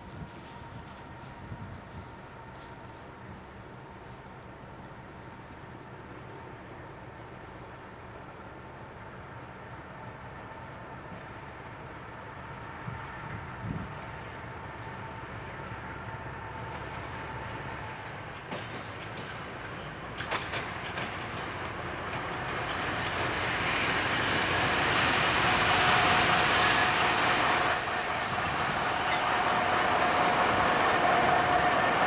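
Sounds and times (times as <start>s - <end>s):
train passing on jointed track: 0.0s - 32.0s
high steady squeal: 25.4s - 32.0s.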